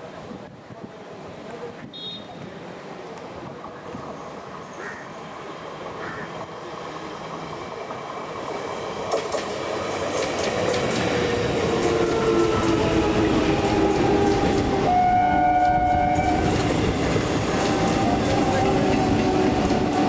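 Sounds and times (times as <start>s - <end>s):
train wheel and rail noise: 0.0s - 20.0s
multi-tone train horn: 14.1s - 16.6s.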